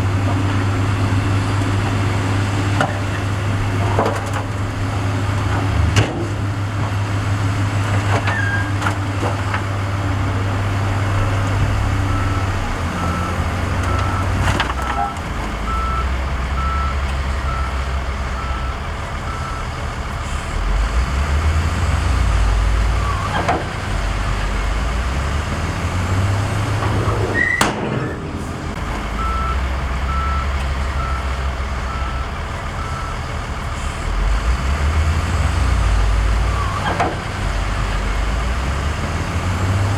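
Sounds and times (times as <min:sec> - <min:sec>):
heavy diesel machinery engine: 0:00.0 - 0:39.9
reversing alarm beeping: 0:11.6 - 0:19.8, 0:27.0 - 0:33.9
metal clanks: 0:26.8 - 0:28.8.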